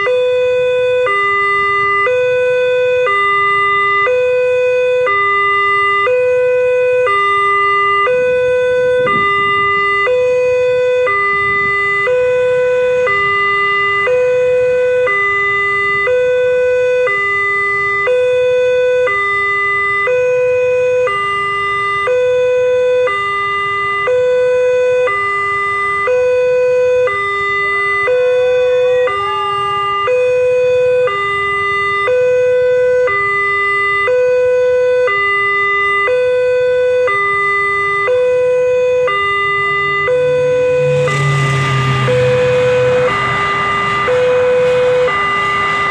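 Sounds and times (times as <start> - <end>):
two-tone crossing alarm: 0.0 - 45.9
low background rumble: 39.9 - 45.9.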